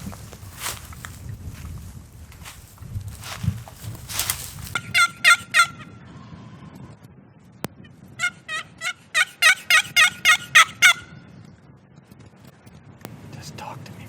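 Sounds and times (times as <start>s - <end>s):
turkey yelping: 4.2s - 6.0s, 8.2s - 11.2s.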